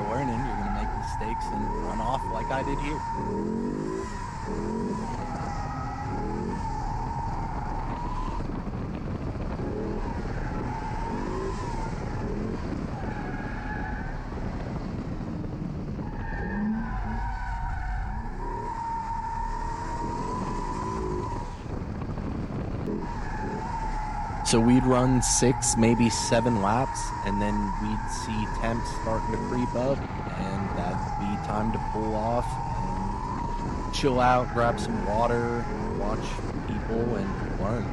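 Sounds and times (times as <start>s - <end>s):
tyre squealing: 0.0s - 8.6s, 16.0s - 21.7s, 22.9s - 37.9s
car engine revving: 0.0s - 15.2s, 16.0s - 37.9s.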